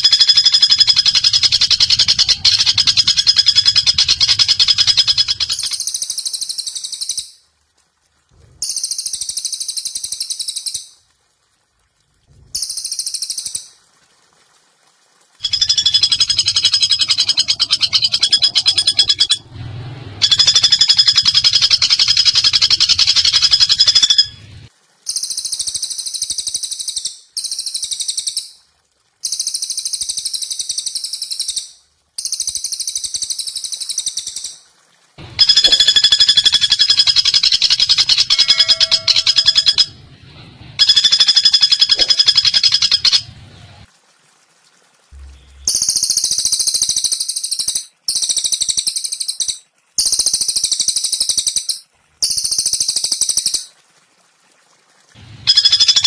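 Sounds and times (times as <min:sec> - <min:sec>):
songbird calls: 0:00.0 - 0:07.3, 0:15.4 - 0:19.5, 0:20.2 - 0:24.5, 0:35.4 - 0:40.0, 0:40.8 - 0:43.3
woodpecker calls: 0:00.0 - 0:07.3, 0:15.4 - 0:19.5, 0:20.2 - 0:24.4, 0:35.4 - 0:40.0, 0:40.8 - 0:43.3, 0:55.5 - 0:56.0.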